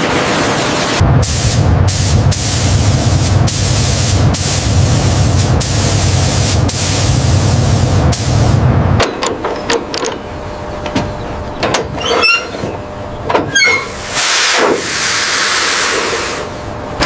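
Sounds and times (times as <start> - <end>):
low motor hum: 1.0 - 14.2, 16.5 - 17.0
high-pressure spray hissing: 1.2 - 8.6, 13.8 - 16.5.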